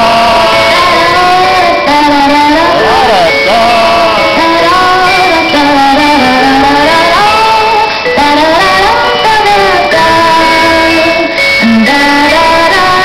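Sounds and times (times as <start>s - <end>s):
sustained musical accompaniment: 0.0s - 13.0s
woman singing: 0.0s - 13.0s.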